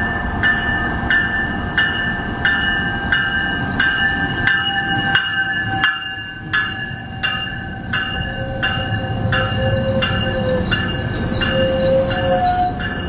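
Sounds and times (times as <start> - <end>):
bell striking: 0.0 - 13.0
high-pitched ringing: 0.0 - 13.0
train wheels rumbling on rail: 0.0 - 13.0
brake squeal: 3.6 - 13.0.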